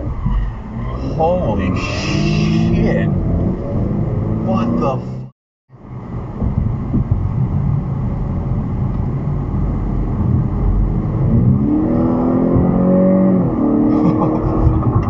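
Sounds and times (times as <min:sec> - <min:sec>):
car engine accelerating: 0:00.0 - 0:15.0
road rumble: 0:00.0 - 0:15.0.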